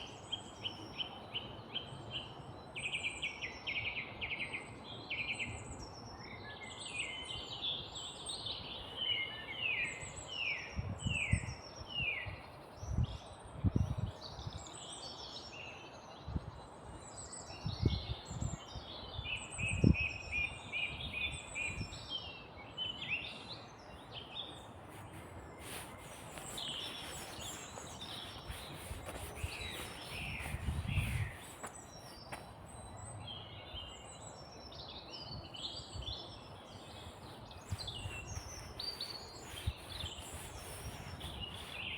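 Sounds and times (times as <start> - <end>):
songbirds singing and chirping: 0.0 - 41.9.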